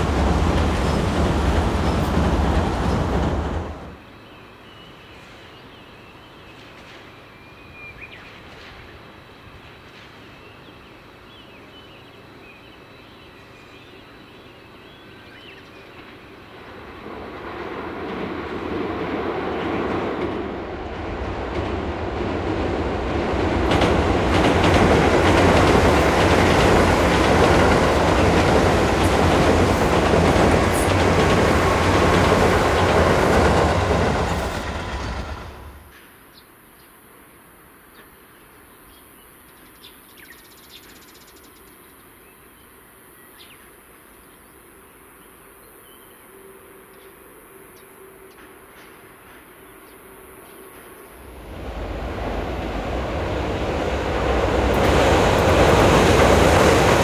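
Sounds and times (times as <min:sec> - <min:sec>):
electric train passing: 0:00.0 - 0:04.1, 0:15.4 - 0:36.0, 0:48.0 - 0:57.0.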